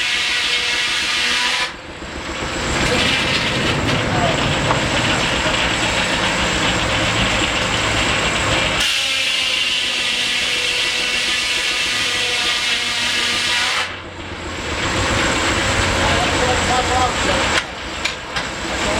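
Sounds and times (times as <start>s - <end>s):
saw whining: 0.0s - 18.9s
engine rumble: 1.6s - 8.9s, 14.0s - 18.9s.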